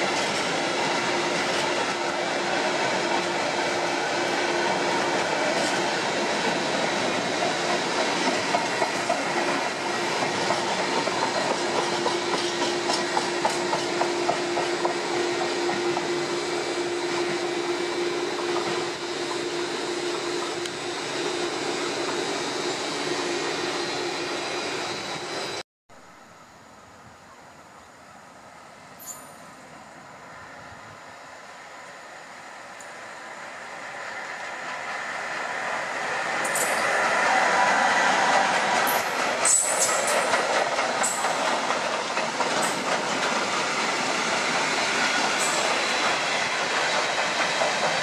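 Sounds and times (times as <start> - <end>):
wheels clickety-clack over rails: 0.0 - 3.7, 4.3 - 16.2, 34.6 - 48.0
train rumble: 0.0 - 25.6, 28.3 - 48.0.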